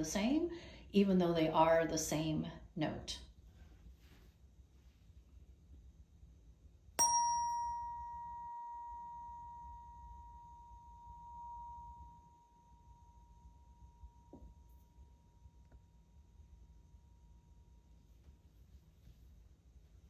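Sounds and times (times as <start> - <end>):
tuning fork ringing: 7.0 - 18.0.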